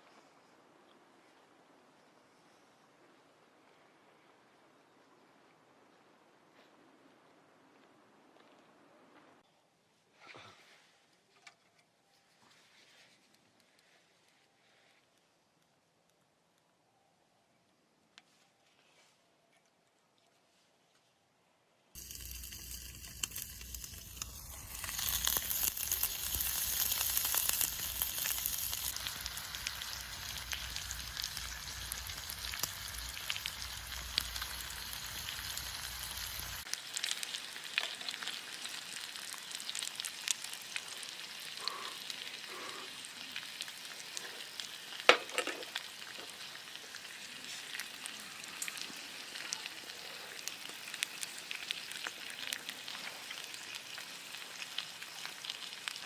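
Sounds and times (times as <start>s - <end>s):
food sizzling in a pan: 22.0s - 56.0s.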